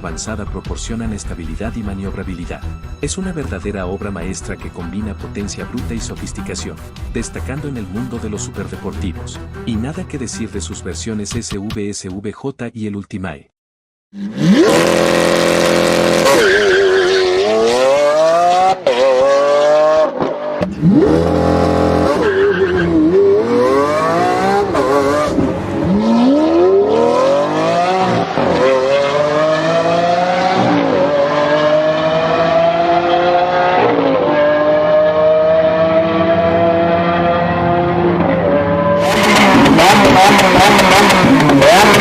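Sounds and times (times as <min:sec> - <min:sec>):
car engine revving and accelerating: 0:14.2 - 0:42.0.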